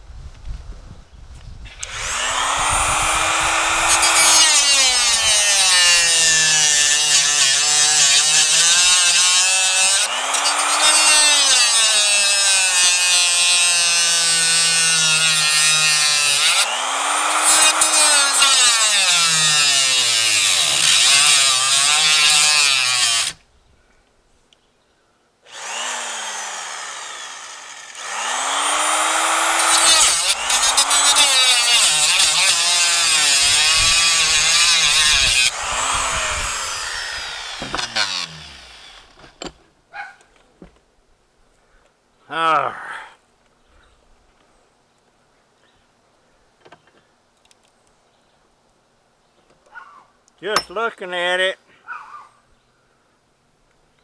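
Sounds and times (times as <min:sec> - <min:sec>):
power tool cutting circuit board: 0:01.8 - 0:23.3, 0:25.5 - 0:39.1.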